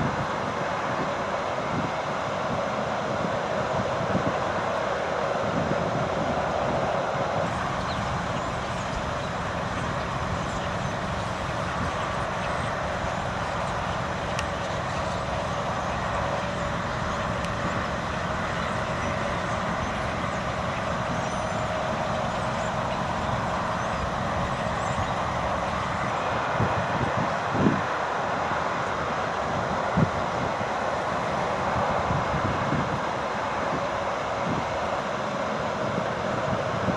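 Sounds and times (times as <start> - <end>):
city traffic hum: 0.0 - 36.9.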